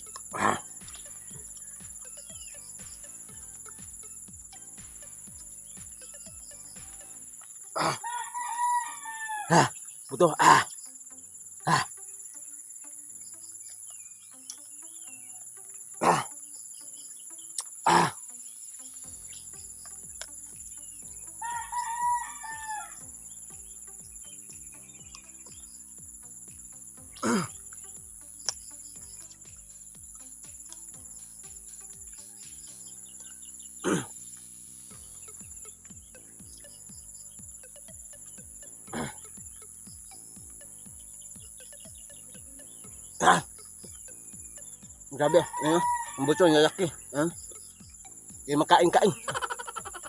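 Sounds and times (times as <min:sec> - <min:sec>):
rooster crowing: 0:07.8 - 0:09.8, 0:21.4 - 0:23.0, 0:45.2 - 0:47.0.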